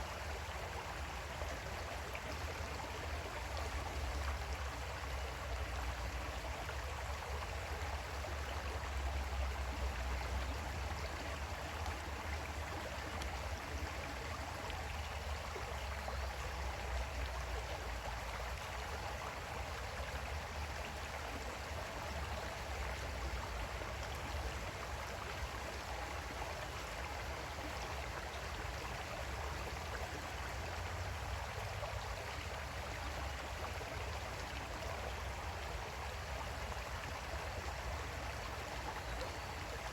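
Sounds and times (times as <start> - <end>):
creek water flowing over stones: 0.0 - 39.9.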